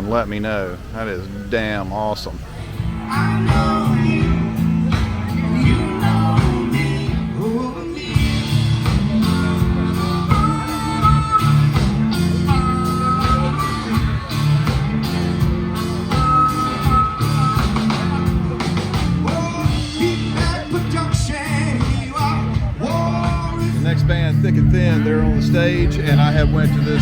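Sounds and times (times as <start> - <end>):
live rock band playing: 2.5 - 27.0
person singing: 3.0 - 14.3.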